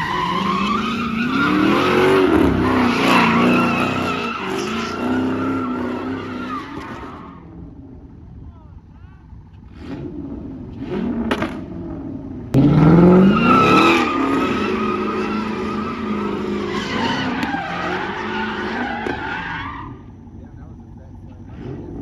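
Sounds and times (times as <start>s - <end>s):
tyres squealing: 0.0s - 7.5s, 13.0s - 20.4s
car engine revving: 0.0s - 8.5s, 9.2s - 22.0s.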